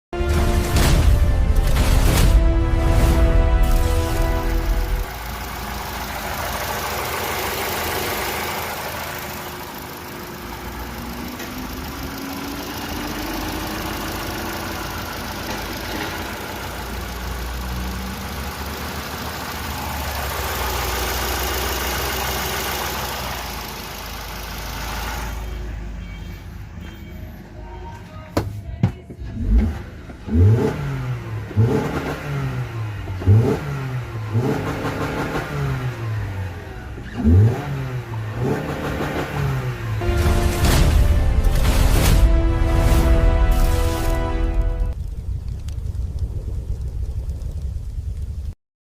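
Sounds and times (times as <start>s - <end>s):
car engine running: 0.3s - 26.2s, 29.3s - 45.0s
engine revving in quick blips: 29.4s - 36.4s.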